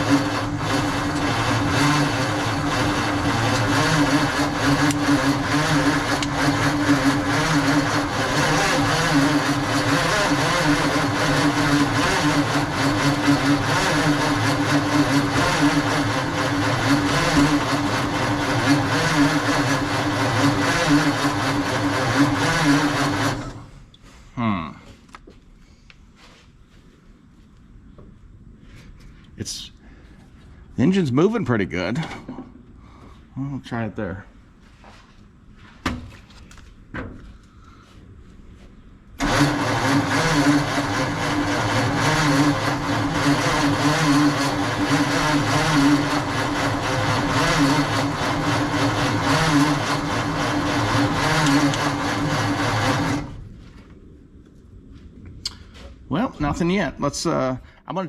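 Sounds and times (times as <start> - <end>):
truck engine cranking on starter: 0.0 - 23.8, 39.2 - 53.5.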